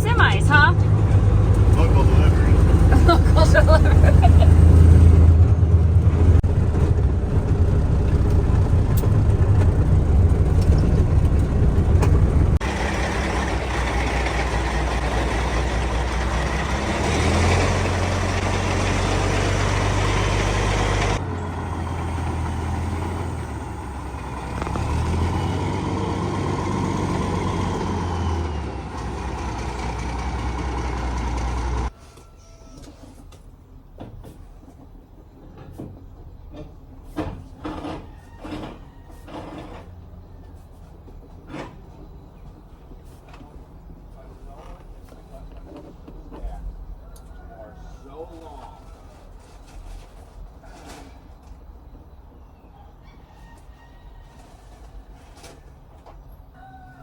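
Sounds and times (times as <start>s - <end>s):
vehicle engine droning: 0.0s - 32.0s.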